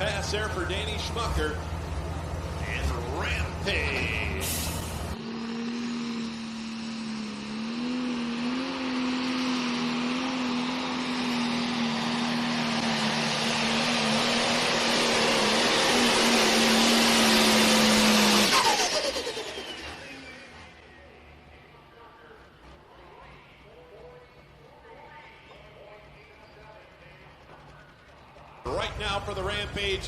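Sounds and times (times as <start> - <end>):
hissing turbo whine: 0.0 - 21.0
diesel engine running: 0.0 - 30.0.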